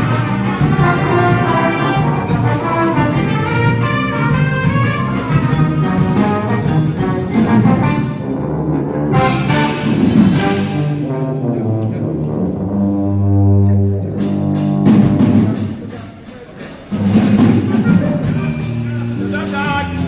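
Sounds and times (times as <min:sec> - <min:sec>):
low brass chord: 0:00.0 - 0:13.8
wind band playing: 0:00.0 - 0:16.0, 0:16.7 - 0:20.0.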